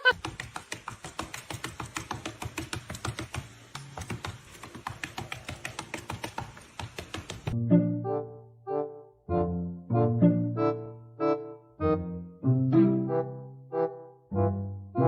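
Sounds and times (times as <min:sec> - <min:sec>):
quick regular tapping: 0:00.1 - 0:07.6.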